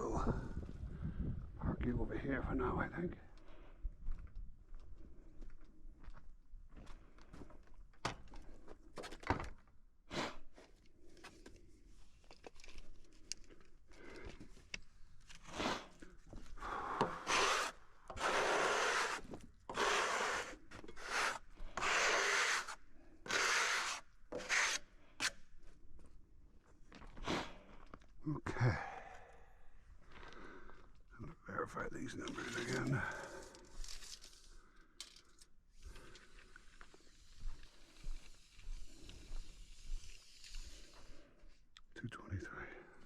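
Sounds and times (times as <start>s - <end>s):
wood scraping and rubbing: 17.3s - 25.3s.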